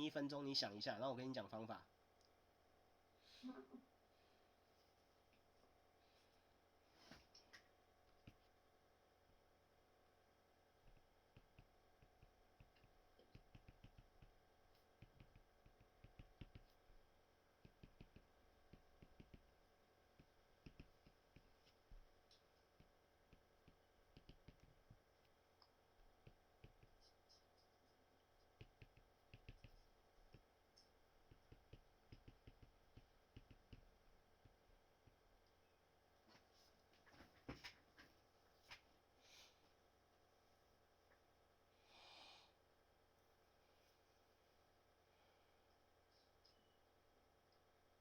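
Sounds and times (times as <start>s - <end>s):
small clicks and taps: 10.9s - 16.8s, 17.6s - 19.5s, 20.2s - 35.6s.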